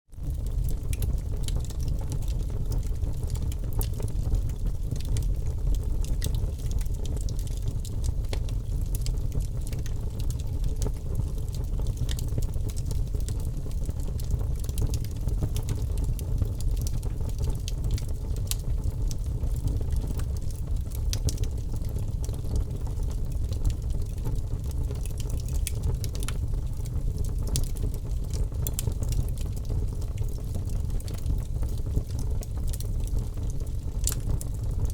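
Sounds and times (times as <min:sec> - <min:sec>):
fire flames rumbling: 0:00.2 - 0:34.9
burning wood crackling: 0:19.6 - 0:34.9.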